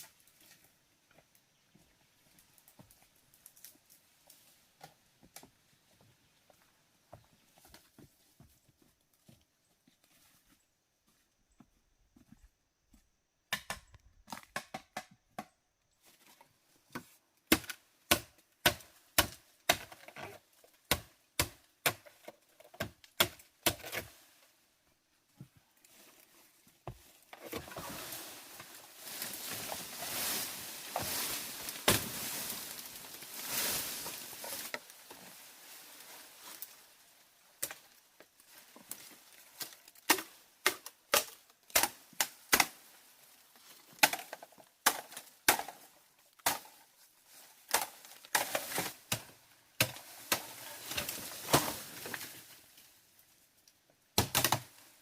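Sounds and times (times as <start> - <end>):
crunching and rustling: 25.8 - 36.9.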